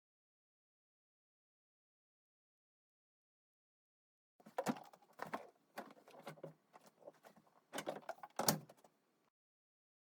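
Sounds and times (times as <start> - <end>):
knocking and clattering of hard parts: 4.4 - 8.9.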